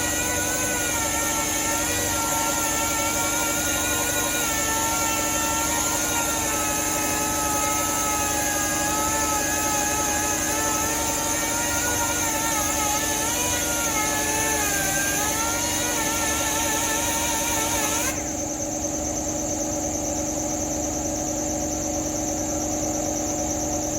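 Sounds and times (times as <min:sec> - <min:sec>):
power sander on metal: 0:00.0 - 0:18.3.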